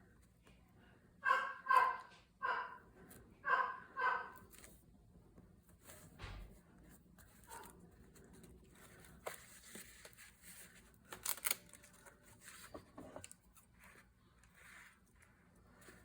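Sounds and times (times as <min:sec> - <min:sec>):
scissors snipping paper: 0:11.0 - 0:12.1.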